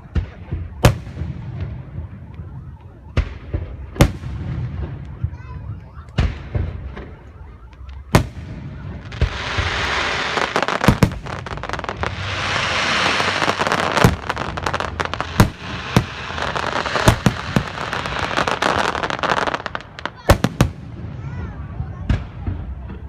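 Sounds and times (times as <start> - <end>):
fireworks bangs: 0.0 - 23.0
fireworks crackling hiss: 8.2 - 21.3.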